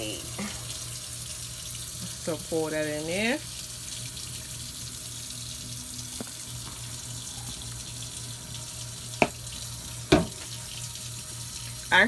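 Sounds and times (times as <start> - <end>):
water running from tap: 0.0 - 12.0
sharp knocks: 10.1 - 10.4.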